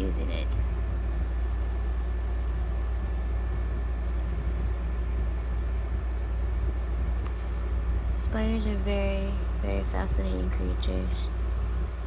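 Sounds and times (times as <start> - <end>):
high pulsing tone: 0.0 - 12.0
low hum: 0.0 - 12.0.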